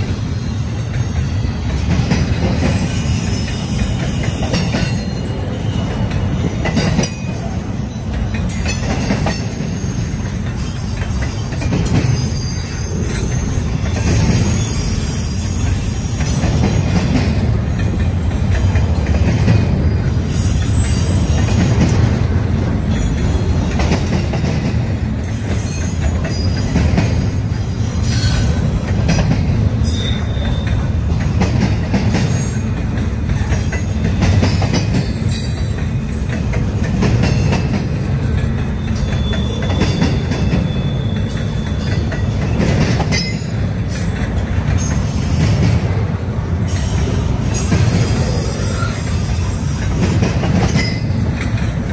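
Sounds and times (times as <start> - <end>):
freight train rumbling past: 0.0 - 51.9
high-pitched wheel squeals: 9.3 - 17.0, 29.8 - 30.9, 38.7 - 44.0.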